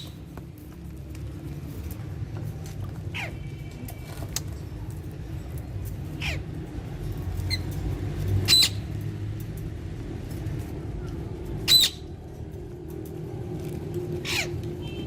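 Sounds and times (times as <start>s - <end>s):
parakeet squawking: 3.1s - 3.5s, 6.1s - 6.6s, 8.4s - 8.9s, 11.7s - 12.1s, 14.2s - 14.6s.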